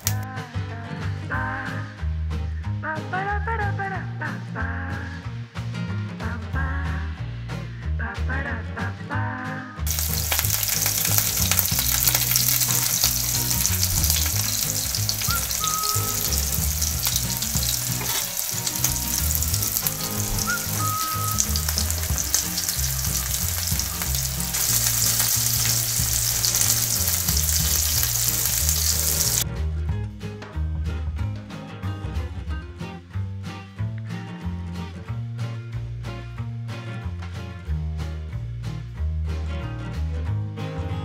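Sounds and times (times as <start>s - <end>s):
mussels sizzling in hot oil: 0.0s - 0.2s, 9.9s - 29.4s.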